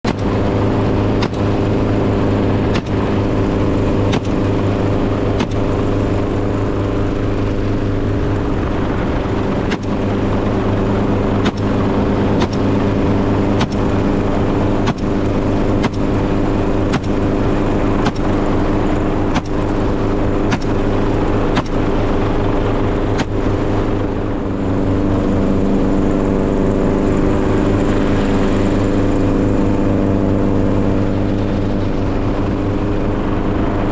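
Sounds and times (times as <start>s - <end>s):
vehicle engine running: 0.0s - 33.9s
sharp click: 19.3s - 19.6s.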